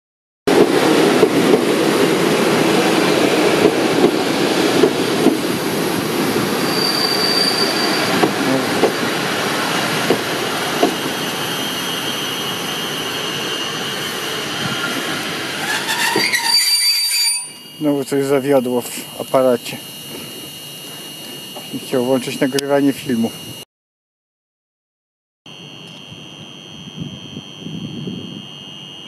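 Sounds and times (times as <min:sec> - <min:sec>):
wheels clicking over rail joints: 0:00.5 - 0:06.6, 0:08.1 - 0:11.2
train wheels rumbling on rails: 0:00.5 - 0:16.8
high wheel squeal: 0:06.3 - 0:21.8.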